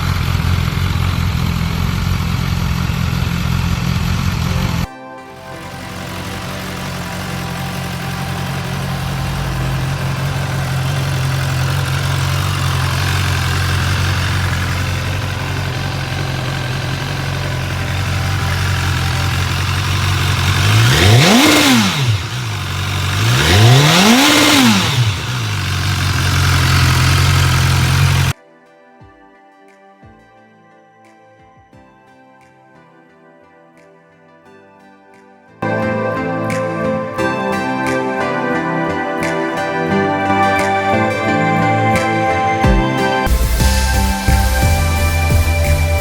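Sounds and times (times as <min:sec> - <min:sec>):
motorcycle engine idling and revving: 0:00.0 - 0:28.4.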